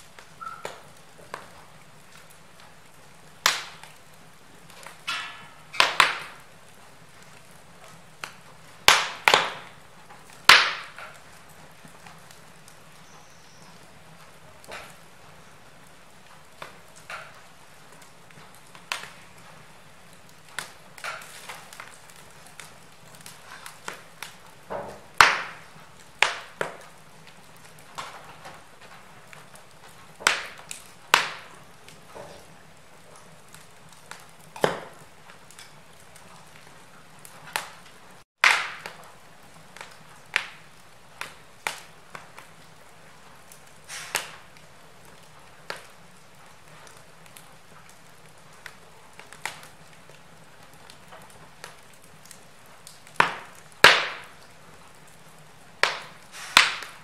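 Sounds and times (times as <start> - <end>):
faint steady hiss: 0.0 - 57.0
wood fire crackling and popping: 0.0 - 57.0.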